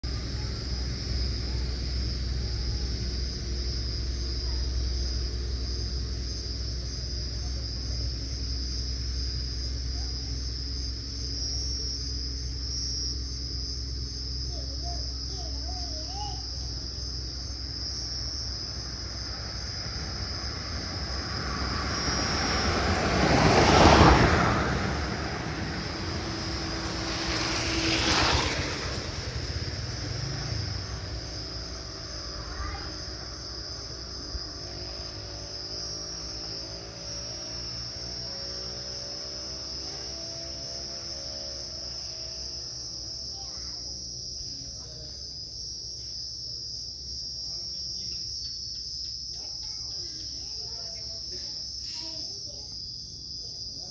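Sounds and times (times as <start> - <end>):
insects chirping: 0.0 - 53.9
loud rushing rumble: 18.1 - 35.6.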